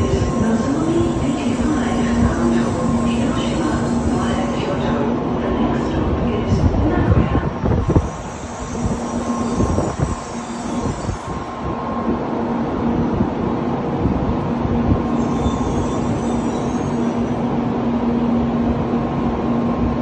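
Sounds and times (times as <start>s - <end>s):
train rumbling: 0.0s - 20.0s
faint wheel squeals: 15.2s - 17.4s.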